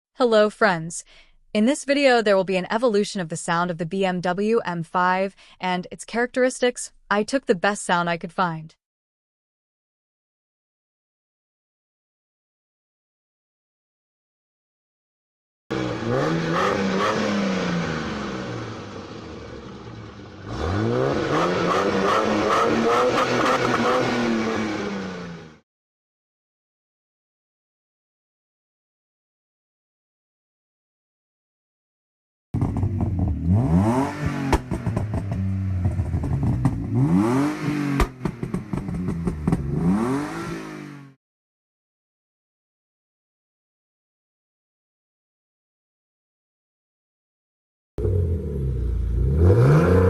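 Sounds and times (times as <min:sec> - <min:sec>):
exhaust cracks: 0:15.7 - 0:25.0, 0:32.6 - 0:40.5
car engine revving: 0:15.7 - 0:25.6, 0:32.6 - 0:41.2, 0:48.0 - 0:50.0.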